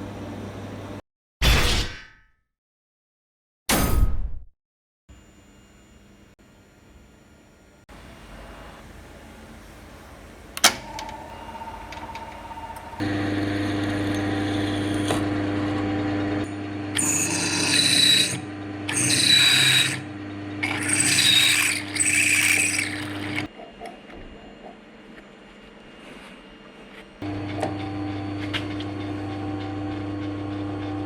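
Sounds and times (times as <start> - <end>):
power tool motor running: 7.9 - 23.5
harsh high-pitched grinding: 10.7 - 23.5.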